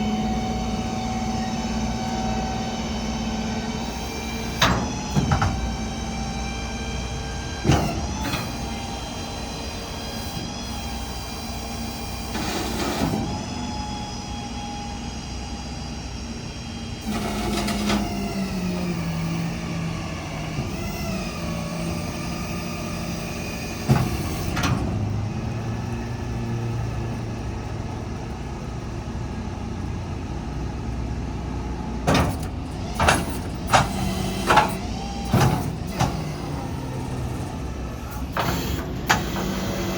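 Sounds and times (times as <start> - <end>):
diesel engine running: 0.0 - 39.9
clunks and knocks: 3.9 - 5.8, 32.0 - 36.5, 38.1 - 39.9.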